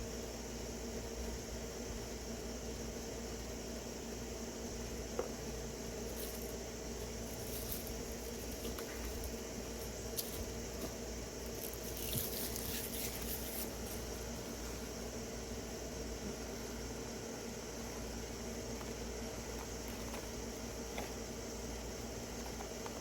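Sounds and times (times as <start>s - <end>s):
background hiss and hum: 0.0s - 23.0s
dry leaves crackling and rustling: 6.0s - 14.9s.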